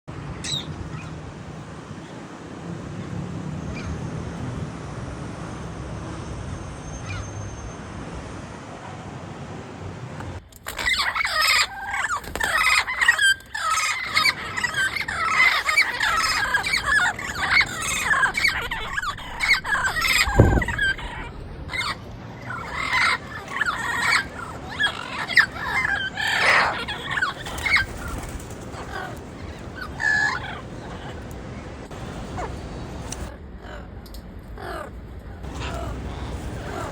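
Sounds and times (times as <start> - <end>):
parrots squawking and shrieking: 10.7 - 33.9, 34.6 - 36.9
low thump: 18.8 - 21.5.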